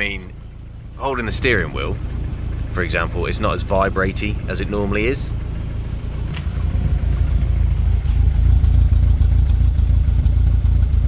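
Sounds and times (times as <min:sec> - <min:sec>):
car engine idling unevenly: 0:00.0 - 0:11.0.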